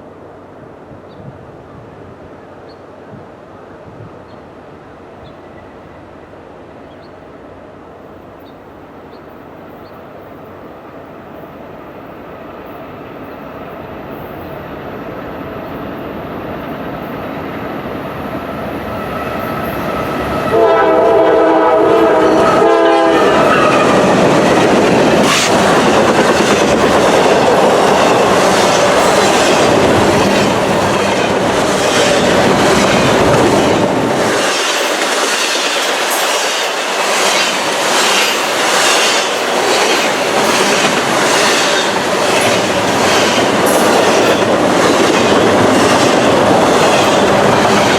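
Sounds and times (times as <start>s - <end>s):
train rumbling past: 0.0s - 47.9s
locomotive horn: 20.4s - 24.2s
wheels clacking over rail joints: 23.3s - 47.9s.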